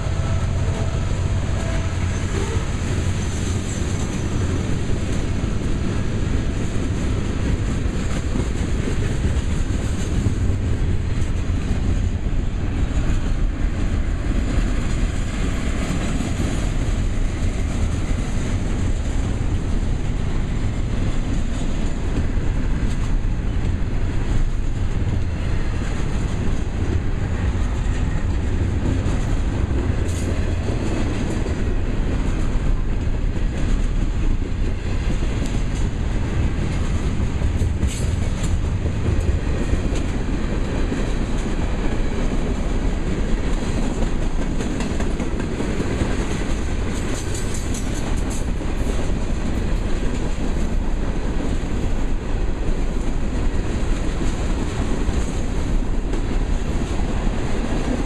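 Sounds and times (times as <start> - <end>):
freight cars rolling past: 0.0 - 7.7
wheels clicking on rails: 0.0 - 58.0.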